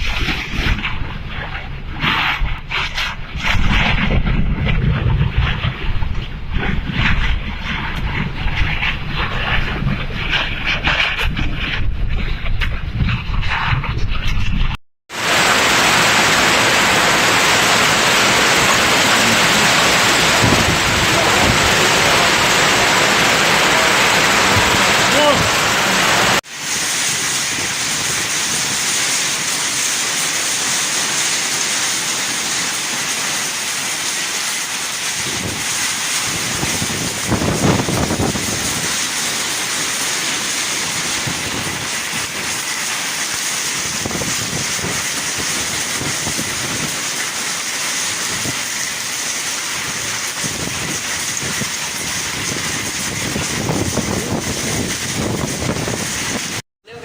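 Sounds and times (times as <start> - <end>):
hail and heavy rain pelting: 15.1 - 56.6.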